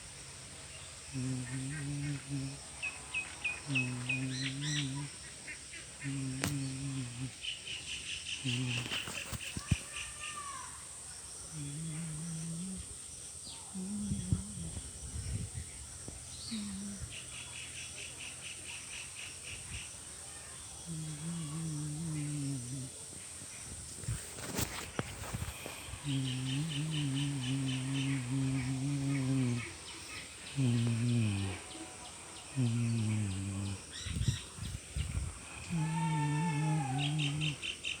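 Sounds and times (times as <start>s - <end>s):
high insect drone: 0.0s - 38.0s
low murmuring voices: 0.8s - 7.4s, 8.3s - 38.0s
deep frog calls: 20.8s - 38.0s.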